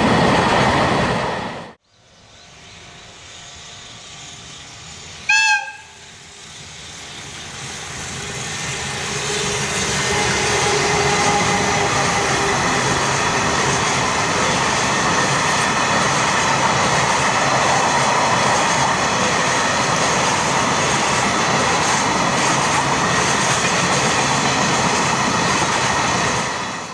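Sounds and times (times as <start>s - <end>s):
train wheels on rails: 0.0s - 26.9s.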